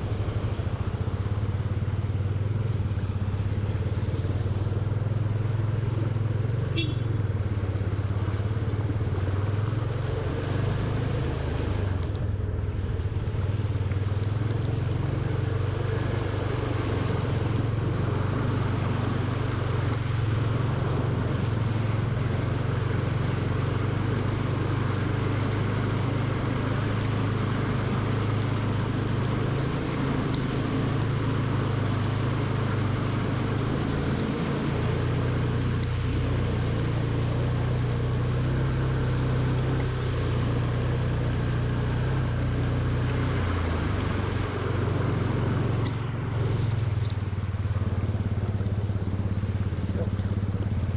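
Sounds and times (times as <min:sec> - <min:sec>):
continuous rushing noise: 0:00.0 - 0:50.9
vehicle engine running: 0:00.0 - 0:50.9.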